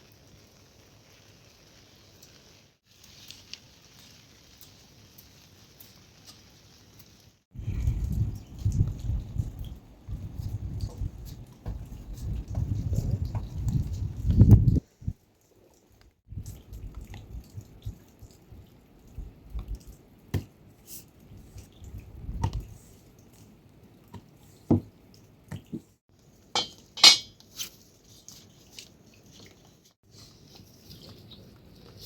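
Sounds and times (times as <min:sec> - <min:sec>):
water drips: 0:02.1 - 0:27.4.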